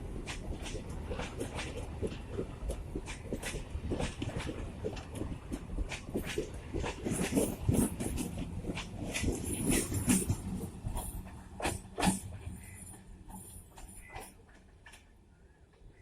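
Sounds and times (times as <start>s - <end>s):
train wheels clattering over rail joints: 0.0s - 15.2s
train low rumble: 0.0s - 16.0s.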